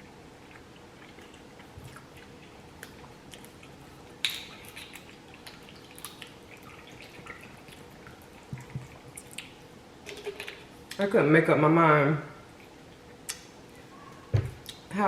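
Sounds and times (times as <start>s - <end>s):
mouth chewing wet clicks: 0.4s - 11.0s, 12.6s - 13.5s.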